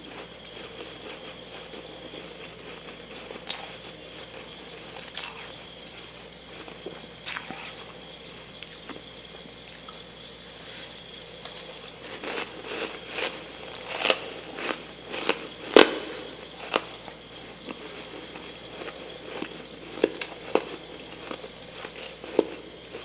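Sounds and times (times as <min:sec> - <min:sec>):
frost crunching in mouth: 0:17.6 - 0:23.0.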